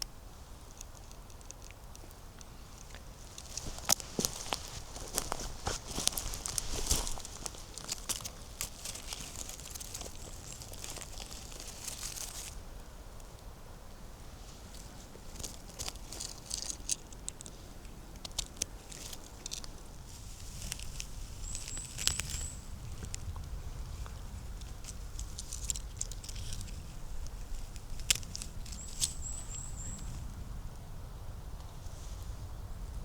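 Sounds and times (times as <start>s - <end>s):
footsteps on dry leaves: 3.2s - 12.6s.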